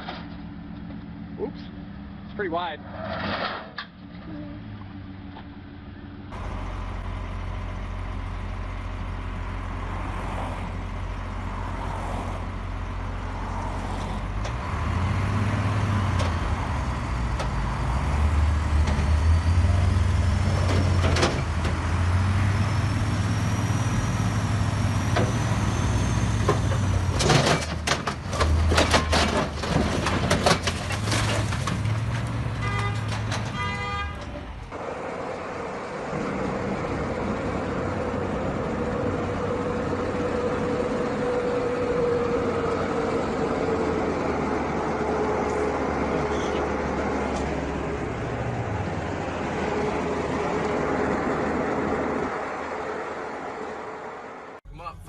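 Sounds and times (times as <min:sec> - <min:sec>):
heavy truck engine rumbling: 0:00.0 - 0:55.0
knocks and clatter: 0:20.5 - 0:22.0, 0:26.3 - 0:34.7.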